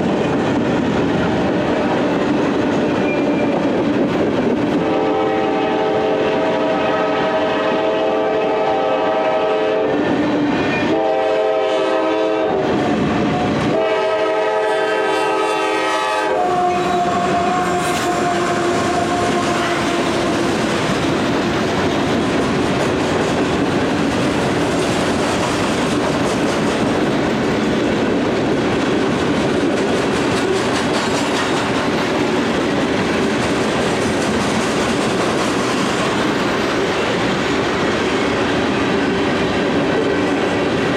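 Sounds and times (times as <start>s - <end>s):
freight train rolling on rails: 0.0s - 40.9s
locomotive air horn blasts: 4.8s - 10.0s, 10.8s - 12.7s, 13.4s - 20.5s.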